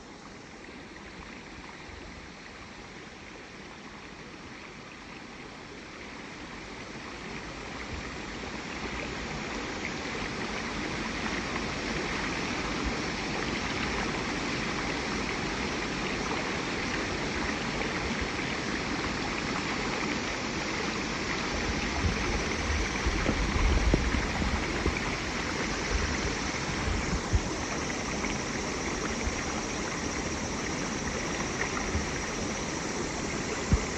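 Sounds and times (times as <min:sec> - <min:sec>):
stream water rushing: 0:00.0 - 0:33.9.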